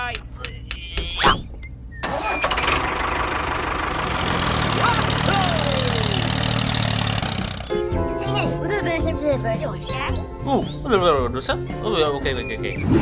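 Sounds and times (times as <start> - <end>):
engine starting and running: 2.0 - 7.8.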